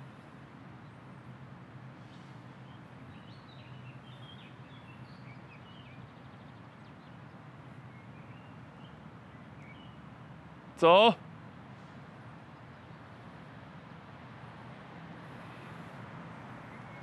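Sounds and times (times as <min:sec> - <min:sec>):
small birds chirping: 0:02.1 - 0:10.1, 0:16.5 - 0:17.0.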